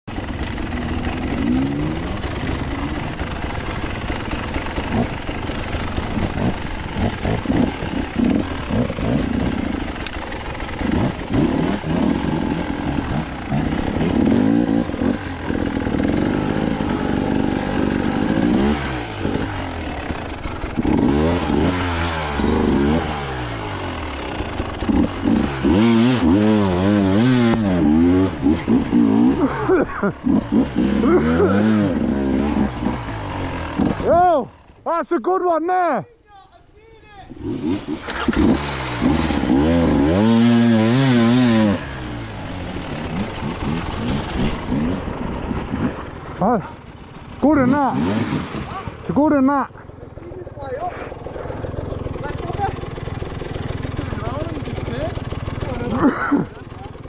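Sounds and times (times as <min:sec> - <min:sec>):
dirt bike engine revving: 0:00.1 - 0:34.9, 0:37.2 - 0:57.0
bike rattling: 0:00.1 - 0:35.1, 0:36.1 - 0:57.0.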